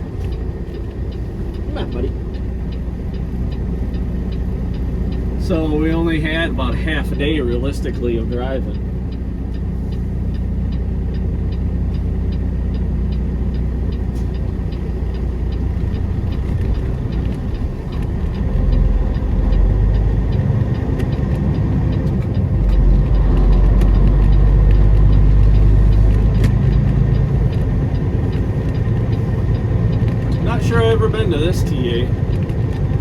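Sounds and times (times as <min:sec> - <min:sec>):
faint ticking: 0:00.0 - 0:33.0
truck diesel engine running: 0:00.0 - 0:33.0.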